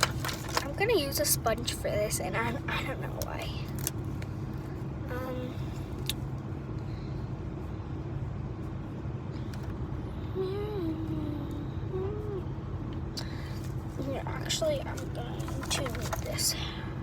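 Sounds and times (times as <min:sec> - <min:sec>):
vehicle rumble and hum: 0:00.0 - 0:17.0
wavering hum: 0:06.8 - 0:17.0.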